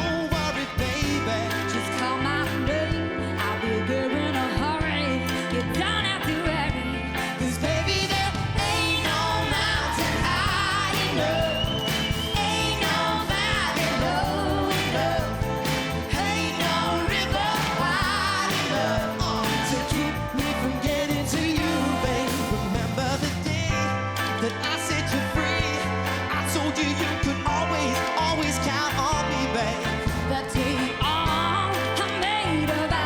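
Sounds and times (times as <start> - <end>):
bass: 0.0 - 33.0
steady drums: 6.2 - 24.3
duet singing with vibrato: 7.8 - 23.4.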